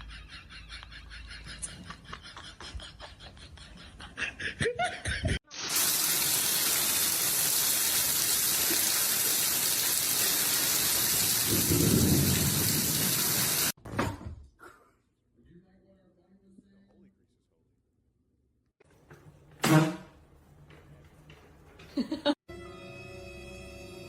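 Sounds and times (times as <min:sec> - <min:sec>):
rush of falling water: 0:05.6 - 0:13.8.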